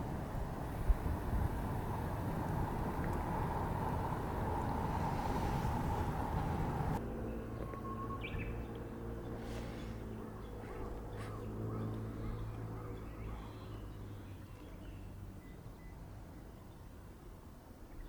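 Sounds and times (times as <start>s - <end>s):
low engine hum: 0.0s - 16.5s
bird chirps: 7.2s - 16.0s.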